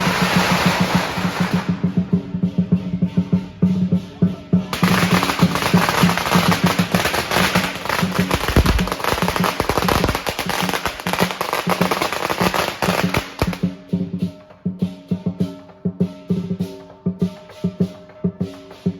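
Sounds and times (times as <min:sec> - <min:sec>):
firecrackers popping: 0:00.0 - 0:02.1, 0:04.7 - 0:13.7
drum and cymbals beat: 0:00.0 - 0:18.9.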